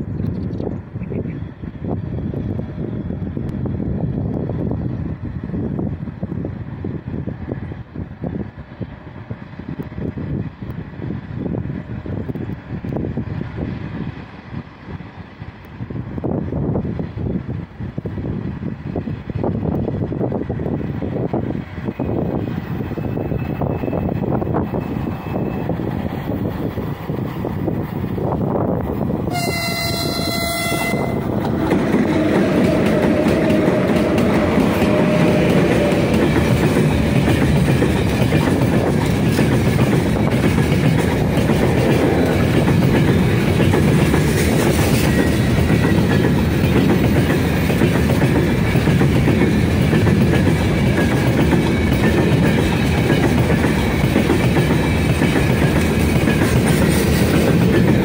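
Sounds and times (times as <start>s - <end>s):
steel wheels on rails: 1.5s - 58.0s
locomotive horn blast: 29.3s - 31.4s.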